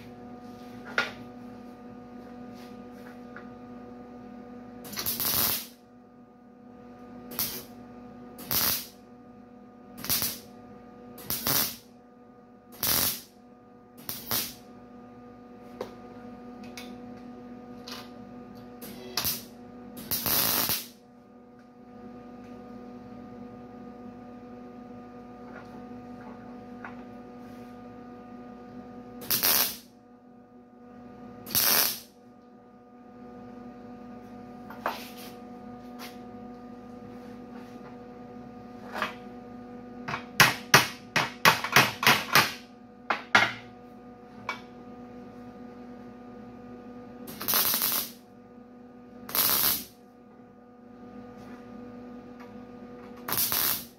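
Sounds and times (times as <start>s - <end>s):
steady electrical hum: 0.0s - 53.9s
welding bursts: 4.9s - 5.8s, 7.3s - 7.7s, 8.4s - 9.0s, 10.0s - 10.5s, 11.2s - 11.8s, 12.8s - 13.3s, 14.0s - 14.6s, 19.2s - 21.0s, 29.2s - 29.9s, 31.5s - 32.1s, 47.3s - 48.2s, 49.3s - 49.9s, 53.3s - 53.9s.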